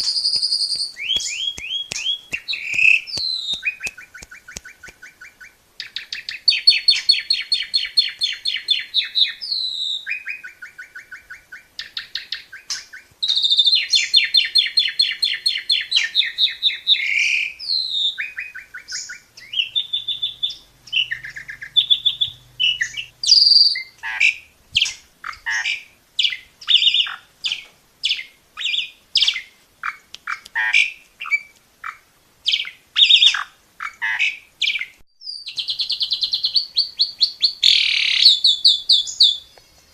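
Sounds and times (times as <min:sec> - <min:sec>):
starling singing: 0:00.0 - 0:39.7.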